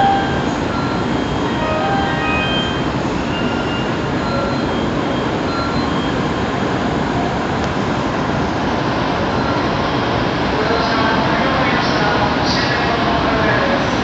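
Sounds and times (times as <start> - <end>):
faint high tones: 0.0 - 4.8
train rumble and rush: 0.0 - 14.0.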